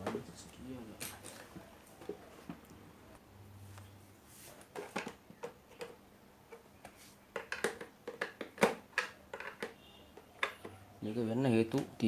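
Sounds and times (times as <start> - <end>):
tools and plastic parts clicking: 7.4 - 10.8.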